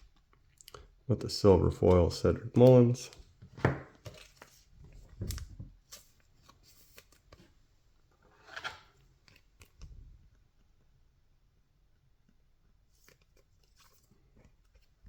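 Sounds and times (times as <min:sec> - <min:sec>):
cards sliding and rustling: 0:03.5 - 0:07.6, 0:08.2 - 0:09.8, 0:13.0 - 0:15.0.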